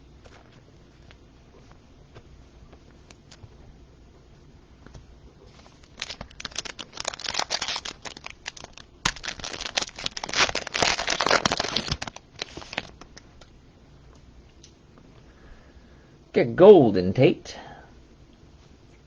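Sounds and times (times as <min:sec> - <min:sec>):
plastic packaging crinkling: 0:05.4 - 0:13.5.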